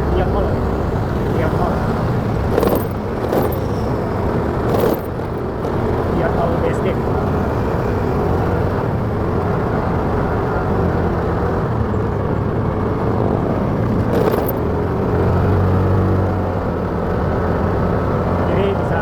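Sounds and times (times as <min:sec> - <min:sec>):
motorcycle engine running: 0:00.0 - 0:06.4, 0:07.0 - 0:15.3
road and wind noise: 0:00.0 - 0:19.0.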